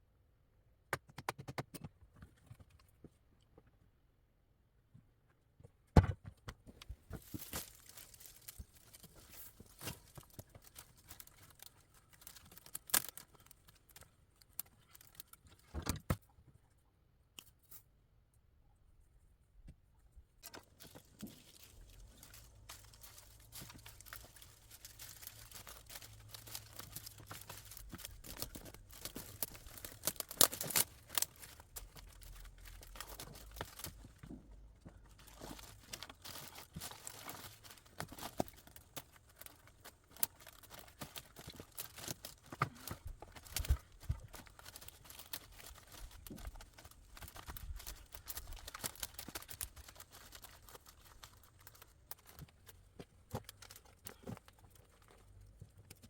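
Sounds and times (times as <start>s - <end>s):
rustling and crinkling: 5.1s - 18.0s, 18.9s - 56.0s.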